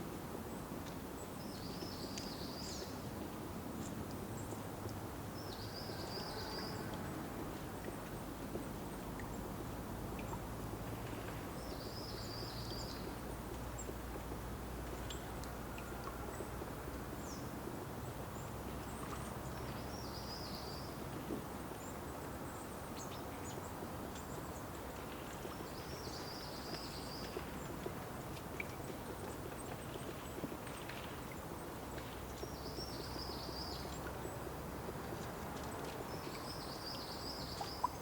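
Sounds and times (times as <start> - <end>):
faint high ticks: 23.8 - 34.2.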